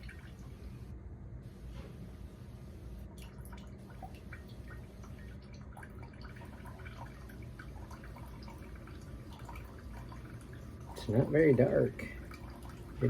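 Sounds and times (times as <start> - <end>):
coffee maker humming: 2.7 - 13.0
coffee trickling into a cup: 3.2 - 13.0.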